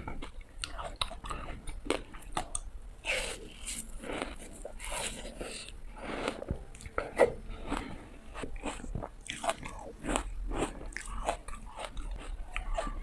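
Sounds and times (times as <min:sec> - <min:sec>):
chewing: 0:00.0 - 0:13.0.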